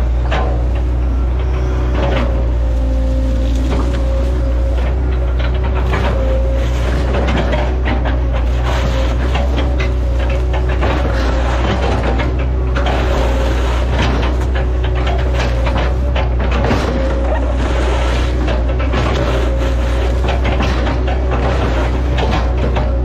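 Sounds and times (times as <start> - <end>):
excavator diesel engine running: 0.0 - 23.0
wood cracking and crunching: 1.9 - 23.0.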